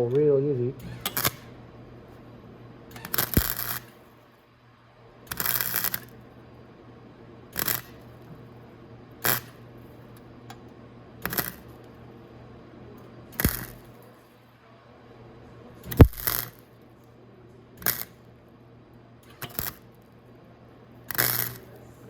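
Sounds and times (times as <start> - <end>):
welding arc bursts: 0.8 - 1.6, 2.9 - 4.1, 5.3 - 6.2, 7.5 - 8.2, 9.2 - 9.7, 11.2 - 11.9, 13.3 - 14.0, 15.8 - 16.6, 17.8 - 18.2, 19.2 - 20.0, 21.1 - 21.8.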